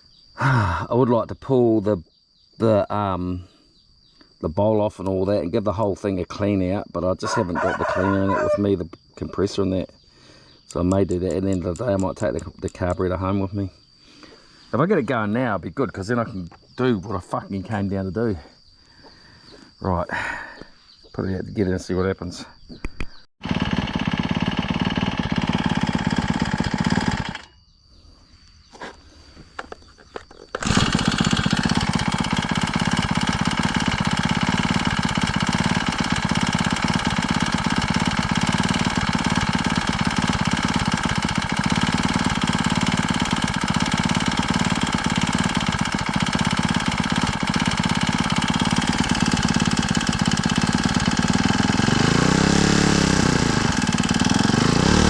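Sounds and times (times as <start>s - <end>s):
brush cutter engine running: 7.2s - 8.7s, 10.7s - 13.5s, 23.4s - 27.5s, 29.6s - 55.0s.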